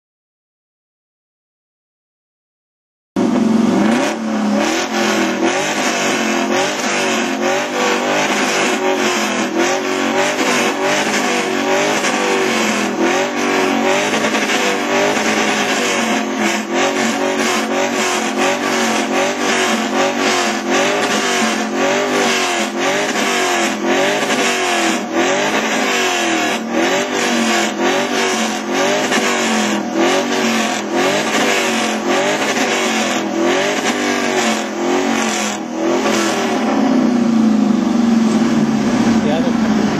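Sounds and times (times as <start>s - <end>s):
car engine revving: 3.2s - 39.9s.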